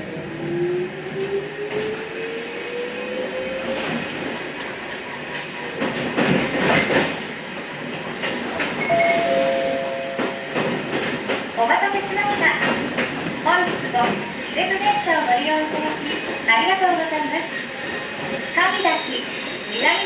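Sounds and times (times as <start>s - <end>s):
wheel clatter and squeal: 6.2s - 7.2s, 18.7s - 20.0s.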